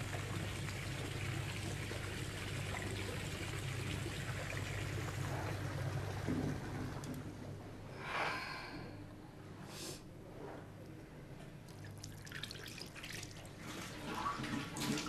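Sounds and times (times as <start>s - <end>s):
water trickling: 0.0s - 7.4s, 11.7s - 15.0s.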